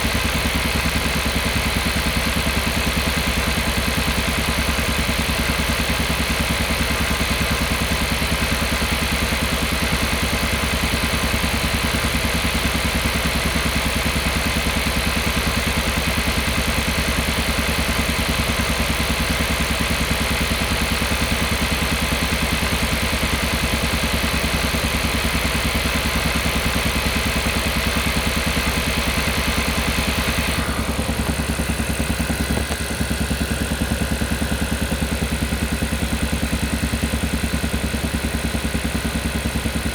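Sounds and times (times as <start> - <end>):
car engine pulsing: 19.6 - 39.9.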